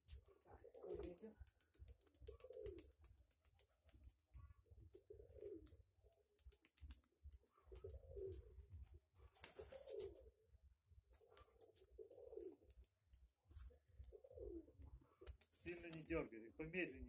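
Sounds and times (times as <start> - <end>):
pigeons cooing: 0.2 - 1.3, 2.0 - 3.0, 4.3 - 6.3, 7.4 - 8.8, 9.4 - 10.4, 11.2 - 12.8, 13.6 - 15.4
small clicks: 5.6 - 8.4.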